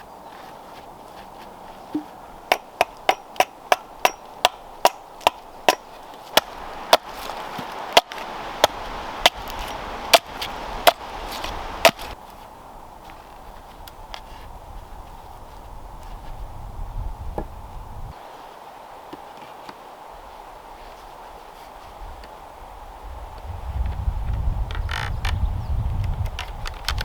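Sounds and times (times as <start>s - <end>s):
wood being chopped: 1.9s - 12.2s.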